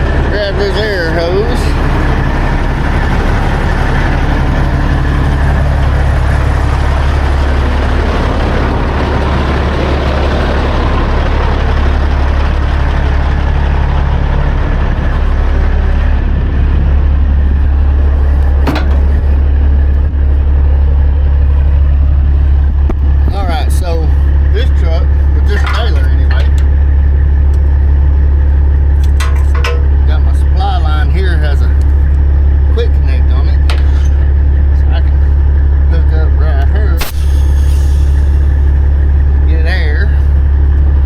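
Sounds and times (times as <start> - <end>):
truck diesel engine idling: 0.0 - 41.0
sharp click: 37.0 - 37.8.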